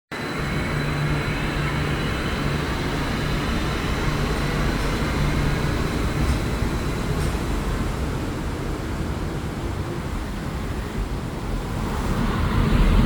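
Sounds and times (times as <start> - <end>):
high whine: 0.1 - 8.3
low pulsing hum: 0.2 - 8.0
train rumbling: 0.2 - 13.0.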